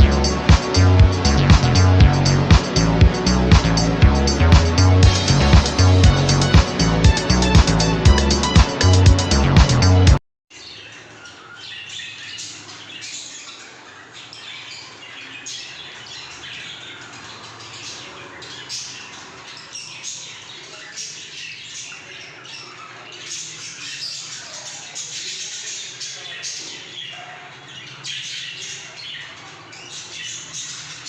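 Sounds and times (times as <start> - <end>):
many birds chattering: 10.5 - 31.0.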